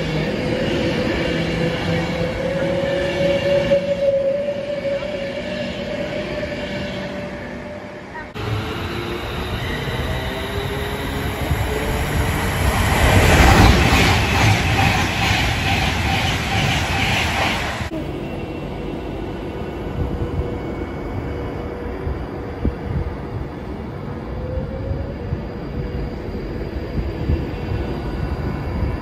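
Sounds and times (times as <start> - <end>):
electric train whine: 0.0 - 29.0
train passing at speed: 0.0 - 29.0.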